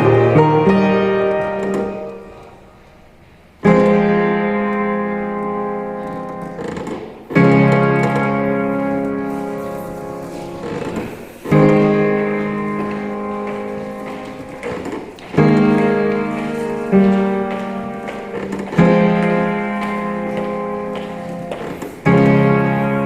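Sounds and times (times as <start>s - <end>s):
slow solo piano chords: 0.0s - 23.0s.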